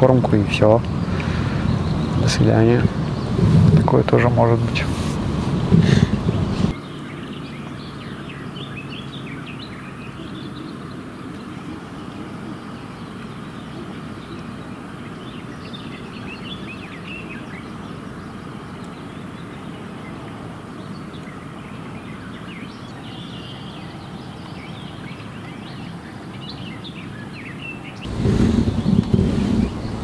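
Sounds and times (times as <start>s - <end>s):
birds chirping: 0.0s - 30.0s
low background rumble: 0.0s - 30.0s.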